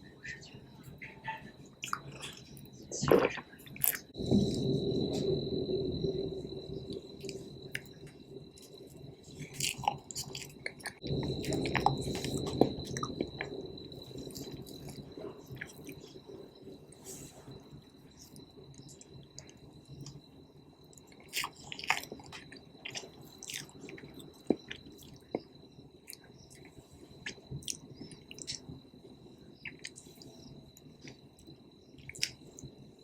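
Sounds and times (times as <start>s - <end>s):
faint high whine: 0.0s - 21.0s
chewing with wet mouth clicks: 1.8s - 4.2s, 7.2s - 16.1s, 20.9s - 28.7s, 29.6s - 32.7s.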